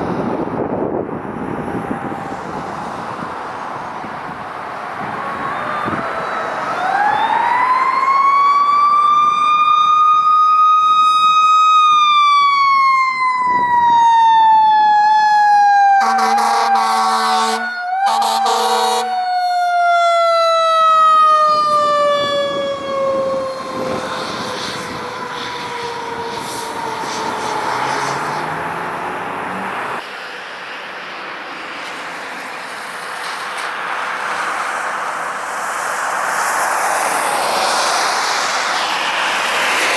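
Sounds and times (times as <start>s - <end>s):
fire truck siren: 0.0s - 30.1s, 30.8s - 39.9s
vehicle noise: 0.0s - 39.9s
air horn blasts: 15.9s - 19.2s.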